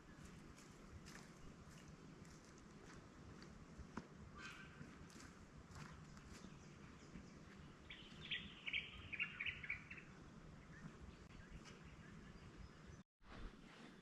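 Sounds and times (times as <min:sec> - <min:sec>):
bird chirping: 0:05.8 - 0:13.0.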